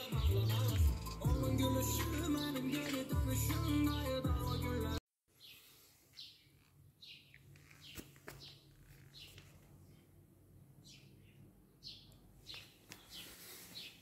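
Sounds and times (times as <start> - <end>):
faint small bird chirps: 10.9 - 14.0.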